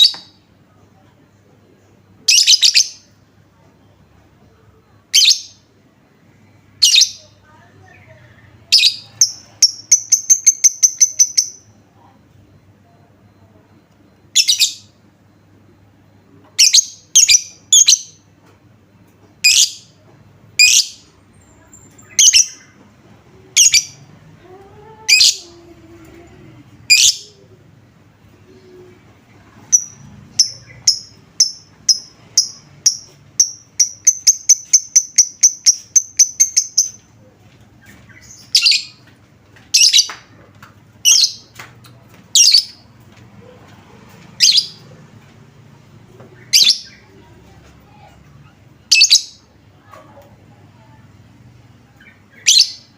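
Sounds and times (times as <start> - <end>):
bird chirping: 6.4 - 12.1, 12.9 - 15.0, 28.5 - 37.1.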